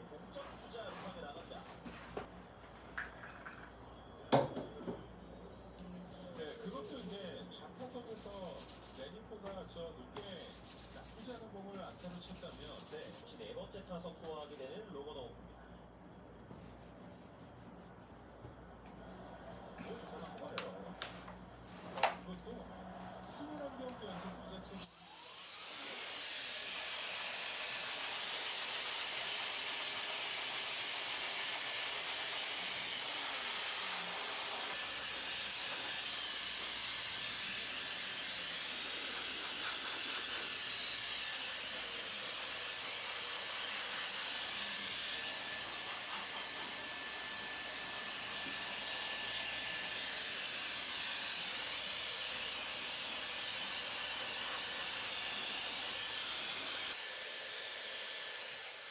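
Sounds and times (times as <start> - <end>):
hair dryer blowing: 24.7 - 58.9.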